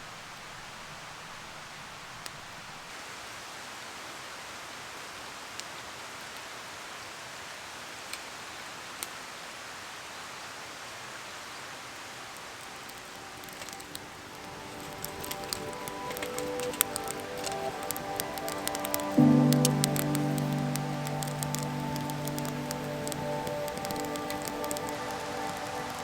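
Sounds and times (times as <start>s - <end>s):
steady rain falling: 0.0s - 26.0s
music: 13.4s - 26.0s.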